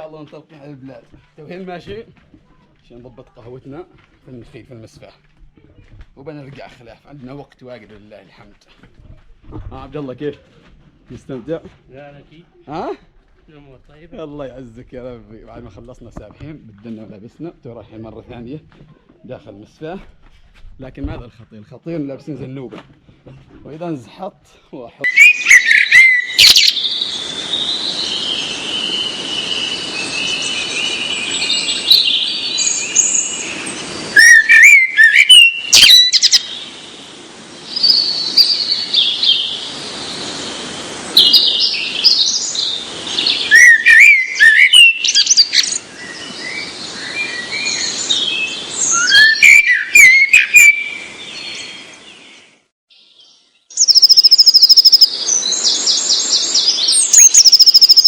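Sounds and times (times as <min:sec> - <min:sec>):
small birds chirping: 0:25.0 - 0:37.0, 0:37.6 - 0:58.0
steady hiss: 0:36.2 - 0:43.5.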